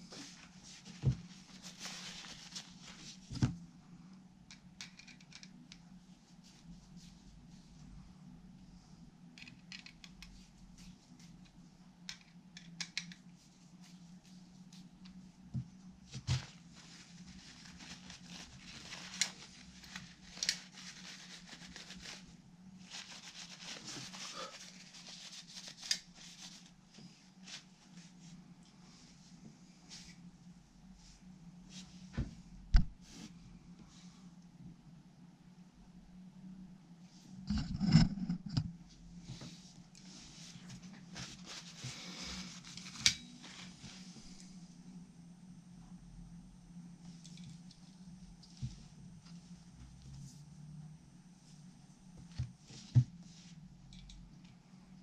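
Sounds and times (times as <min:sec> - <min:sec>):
faint steady hum: 0:00.0 - 0:55.0
rustling and handling small parts: 0:04.5 - 0:07.1, 0:09.2 - 0:27.7, 0:39.3 - 0:44.6.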